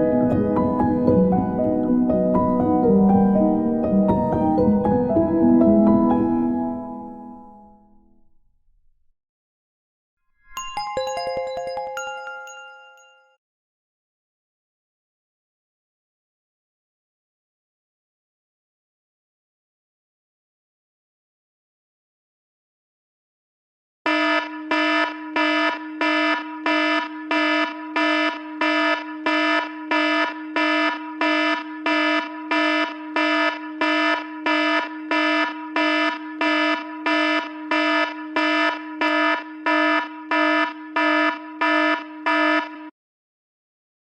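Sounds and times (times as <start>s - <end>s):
buzzy pulsing phone alert: 24.1s - 42.8s.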